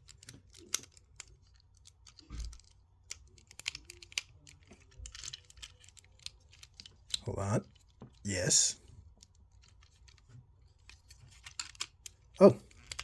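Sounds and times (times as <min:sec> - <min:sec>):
plastic toy clicks and clacks: 0:00.0 - 0:08.2, 0:09.0 - 0:13.0.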